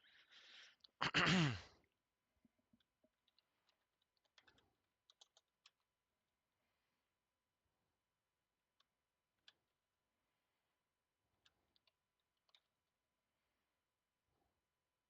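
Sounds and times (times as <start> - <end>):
keyboard typing clicks: 2.8 - 5.8, 11.4 - 12.7.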